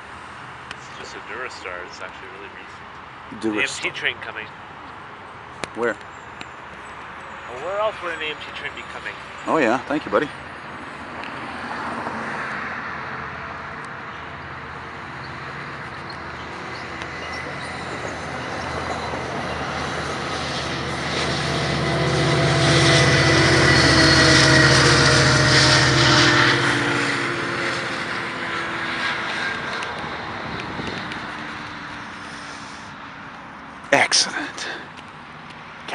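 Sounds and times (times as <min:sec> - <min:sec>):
diesel locomotive engine hum: 0:12.8 - 0:34.8
train rail noise: 0:14.8 - 0:33.4.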